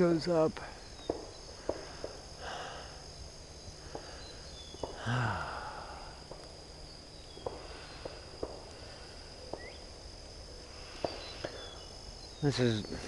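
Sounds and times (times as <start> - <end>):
insects buzzing: 0.0 - 13.0
low grunt: 5.0 - 5.8.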